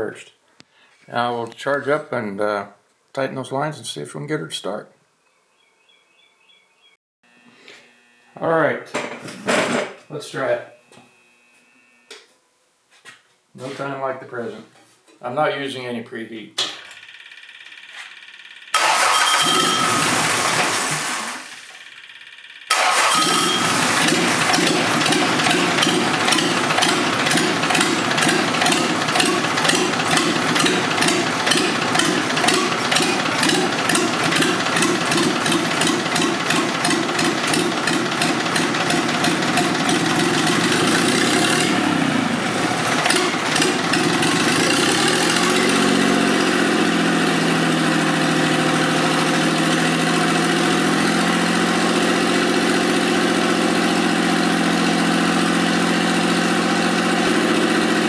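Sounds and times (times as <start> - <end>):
tractor diesel engine clattering: 18.8 - 21.1, 22.7 - 41.9, 42.7 - 46.3.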